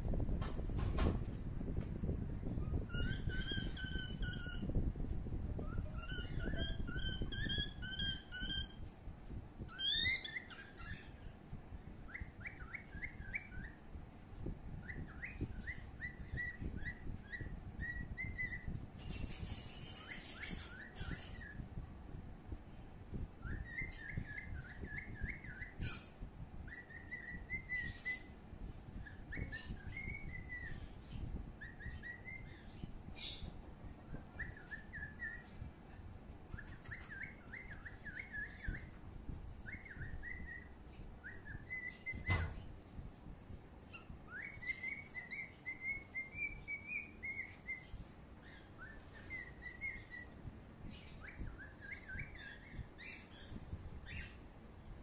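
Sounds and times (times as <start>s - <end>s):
bird singing whistled phrases: 2.6s - 4.8s, 5.6s - 8.8s, 9.7s - 11.1s, 12.1s - 13.8s, 14.8s - 21.6s, 23.4s - 28.3s, 29.0s - 35.6s, 36.5s - 39.0s, 39.6s - 42.6s, 43.9s - 54.4s.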